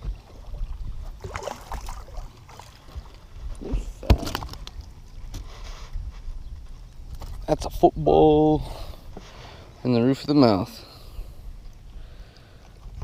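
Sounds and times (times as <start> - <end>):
water sloshing and splashing: 0.0 - 5.9.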